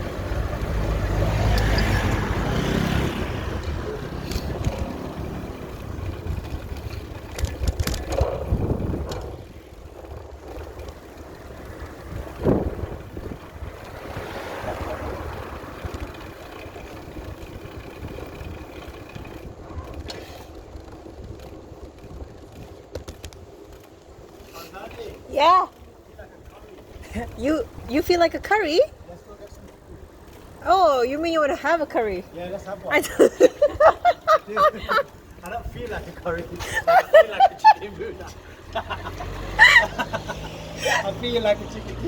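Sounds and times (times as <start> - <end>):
wind buffeting microphone: 0.1 - 24.4, 33.3 - 37.6.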